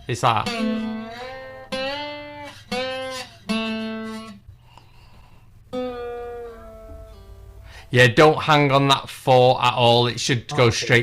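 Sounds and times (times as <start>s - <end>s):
slide guitar notes: 0.4s - 4.3s, 5.7s - 7.9s.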